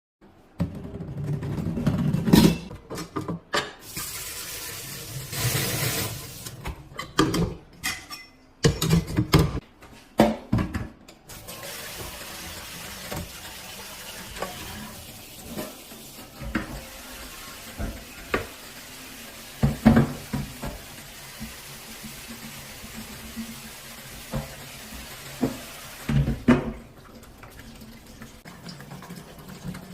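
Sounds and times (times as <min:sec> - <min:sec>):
faucet water running into sink: 0:03.8 - 0:06.6, 0:11.3 - 0:29.9.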